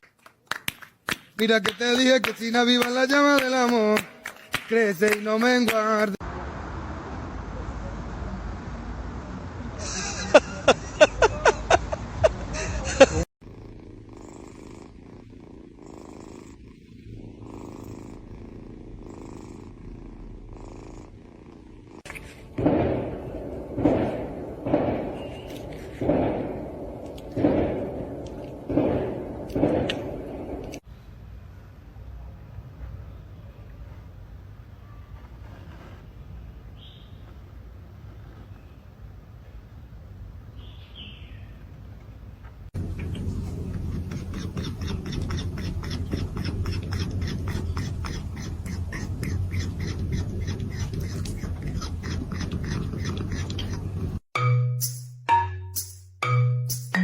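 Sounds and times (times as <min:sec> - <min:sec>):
heavy thuds: 0:22.1 - 0:30.8
steady low rumble: 0:22.5 - 0:30.8
animal short calls: 0:43.8 - 0:53.9.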